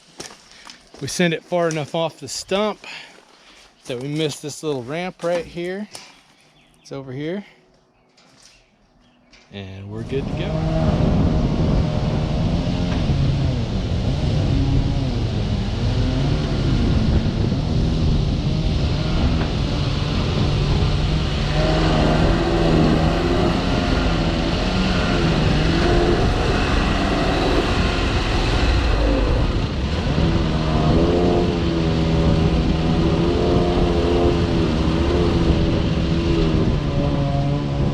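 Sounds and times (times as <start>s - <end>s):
track loader engine running: 16.4s - 36.8s.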